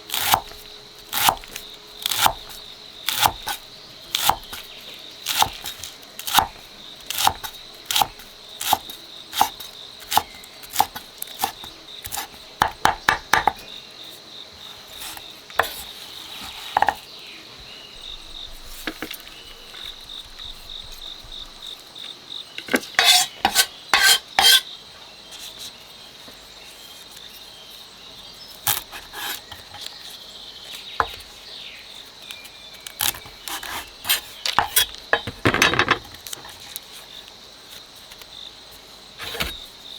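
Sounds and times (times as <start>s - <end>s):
insects droning: 0.0s - 39.9s
metal utensil on cookware: 23.0s - 24.6s.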